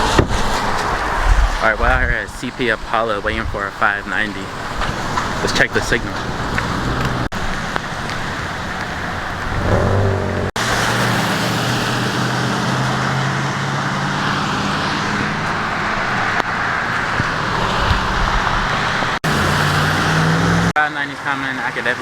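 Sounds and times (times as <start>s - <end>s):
road noise rushing: 0.0s - 22.0s
engine hum: 3.7s - 20.8s.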